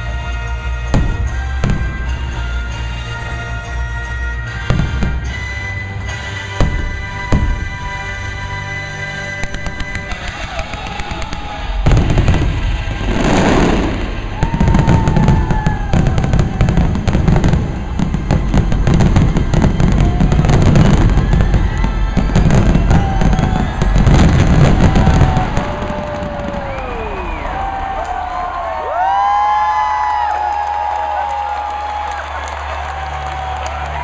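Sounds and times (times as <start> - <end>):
fireworks bangs and crackles: 0.0 - 33.9
show music: 0.0 - 34.0
fireworks whistles gliding down: 9.3 - 28.4.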